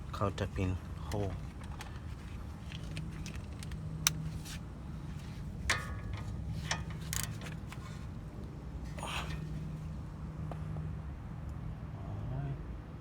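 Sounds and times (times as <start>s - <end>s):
steady low hum: 0.0s - 11.4s
ringing metal clatter: 5.6s - 8.1s
metallic clicks from hand tools: 5.7s - 7.8s.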